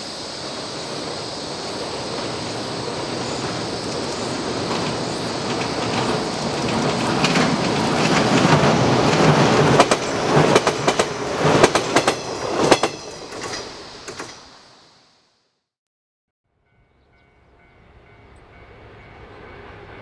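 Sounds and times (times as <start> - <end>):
train rumbling: 0.0 - 14.9, 16.6 - 20.0
wheels clicking over rail joints: 0.6 - 14.5.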